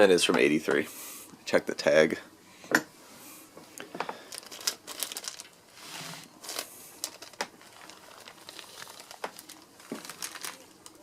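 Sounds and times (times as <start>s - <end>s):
packaging crinkling: 4.2s - 11.0s.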